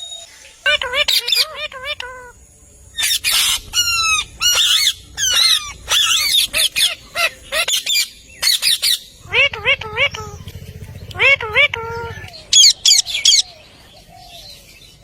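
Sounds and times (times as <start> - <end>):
parrot chirping and squawking: 0.1 - 13.5.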